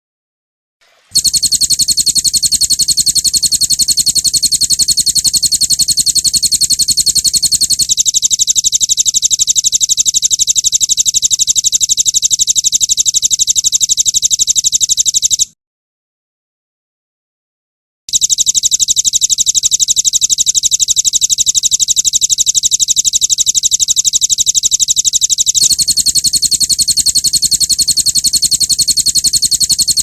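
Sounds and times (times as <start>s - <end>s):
songbird rapid trill: 1.2s - 12.6s, 18.2s - 30.0s.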